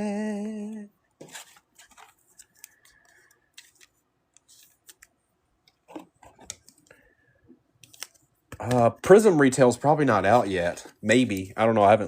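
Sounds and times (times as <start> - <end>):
trading cards clicking and rustling: 1.2 - 7.0, 7.8 - 9.4, 10.0 - 12.0.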